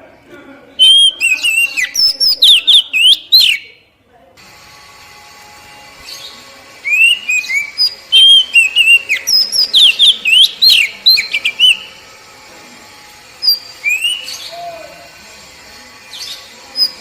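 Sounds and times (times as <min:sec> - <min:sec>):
bird singing whistled notes: 0:00.8 - 0:03.8, 0:06.1 - 0:12.0, 0:13.4 - 0:14.6, 0:16.2 - 0:17.0.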